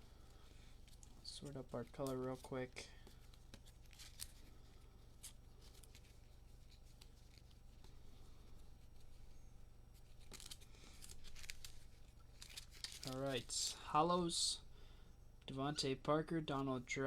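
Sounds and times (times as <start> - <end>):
steady low hum: 0.0 - 17.0
trading cards being shuffled: 0.5 - 13.6.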